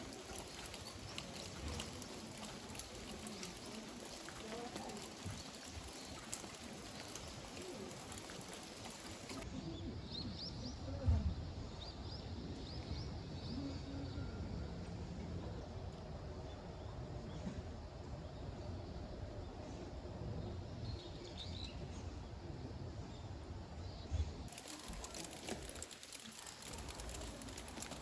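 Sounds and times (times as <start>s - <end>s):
birds chirping: 0.0s - 9.4s.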